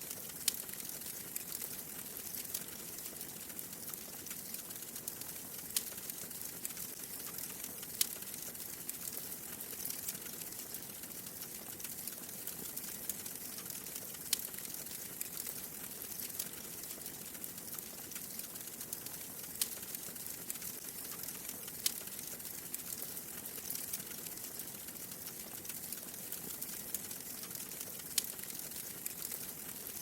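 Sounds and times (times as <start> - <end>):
wood fire crackling: 0.0 - 30.0
sharp pops from fire: 11.8 - 29.8.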